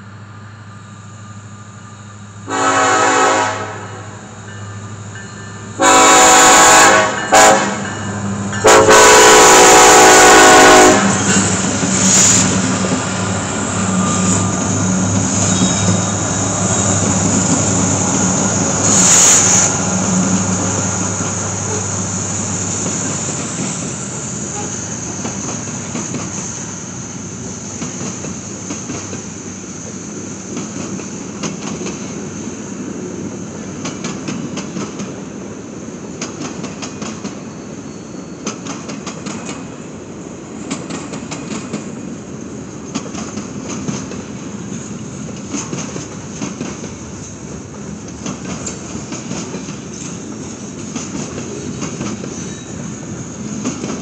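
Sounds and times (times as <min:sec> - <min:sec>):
locomotive horn blasts: 0:02.5 - 0:04.3, 0:05.8 - 0:07.9, 0:08.6 - 0:11.3.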